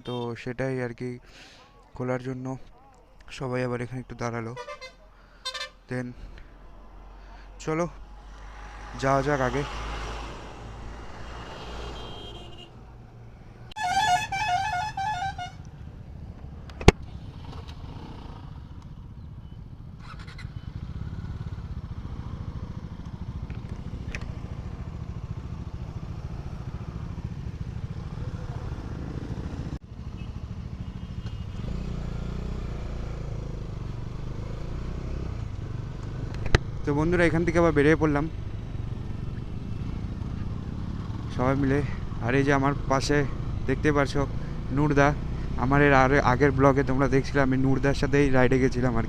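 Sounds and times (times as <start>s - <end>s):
vehicle horn honking: 4.6s - 5.8s, 11.9s - 12.9s, 13.8s - 15.7s
motorcycle engine running: 15.6s - 37.6s, 38.2s - 46.6s.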